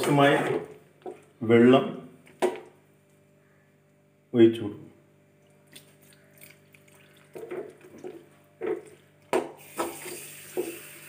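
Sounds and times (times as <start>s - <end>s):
water poured into hot pan: 9.6s - 11.0s.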